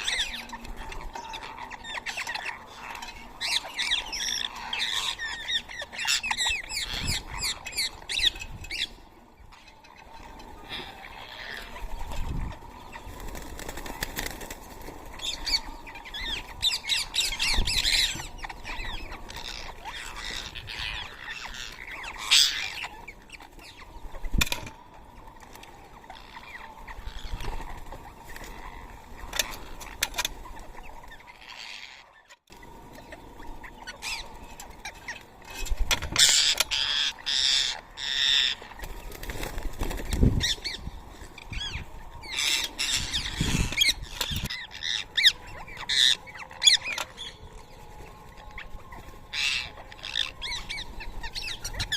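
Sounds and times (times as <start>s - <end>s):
parakeets screeching and chirping: 0.0s - 51.9s
wing flaps: 13.1s - 15.6s, 38.8s - 40.7s.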